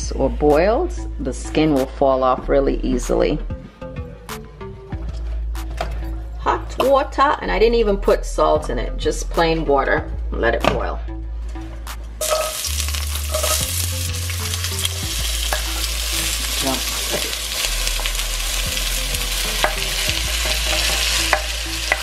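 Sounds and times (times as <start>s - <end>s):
onion and tomato sizzling in oil: 12.2s - 22.0s.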